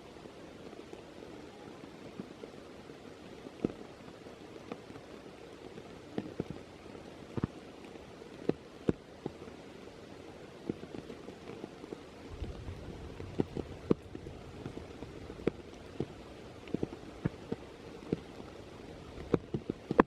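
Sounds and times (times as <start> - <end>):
steady rain: 0.0 - 20.0
low rumble: 12.3 - 19.3.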